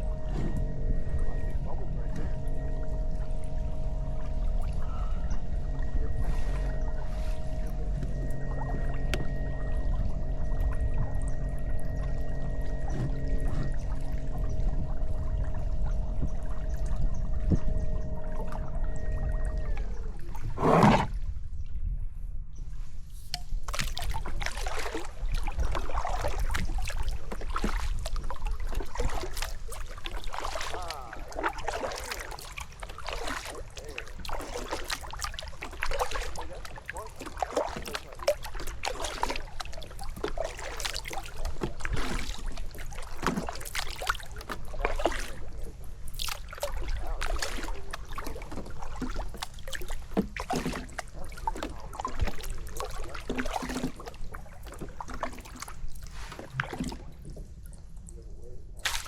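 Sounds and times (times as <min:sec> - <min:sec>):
steady low rumble: 0:00.0 - 0:50.2
paddle strokes splashing: 0:04.6 - 0:08.2, 0:23.2 - 0:57.5, 0:58.8 - 0:59.0
paddle knocking against hull: 0:46.2 - 0:55.7.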